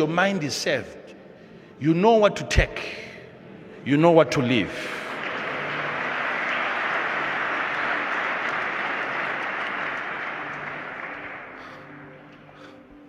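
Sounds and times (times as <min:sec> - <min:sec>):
crowd clapping: 0:04.8 - 0:12.8.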